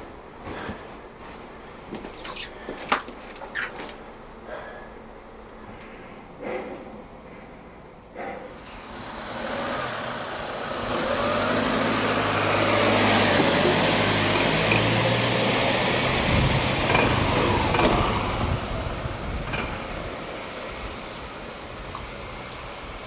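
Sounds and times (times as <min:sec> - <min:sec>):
vehicle passing by: 0:08.5 - 0:23.0.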